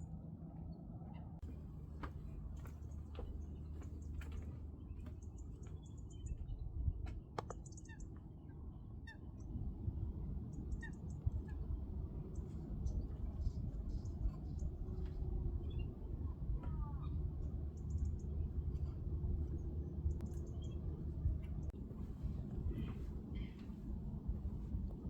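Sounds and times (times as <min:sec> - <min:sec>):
steady low rumble: 0:01.4 - 0:07.4, 0:08.2 - 0:25.0
wild birds calling and chirping: 0:22.7 - 0:23.8.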